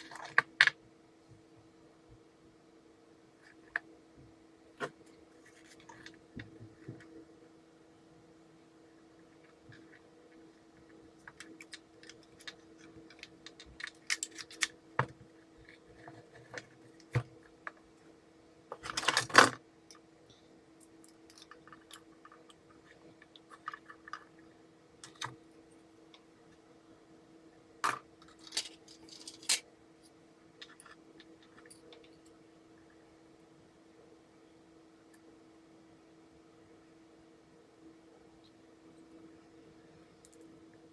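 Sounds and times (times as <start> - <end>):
faint steady hum: 0.0 - 40.9
parts clattering: 27.8 - 29.6.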